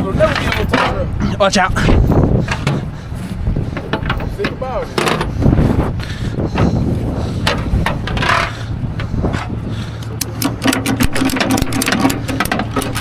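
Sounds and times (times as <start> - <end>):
truck engine idling: 1.8 - 13.0
scraping and knocking: 2.4 - 6.0
sharp mechanical clicks: 10.2 - 13.0.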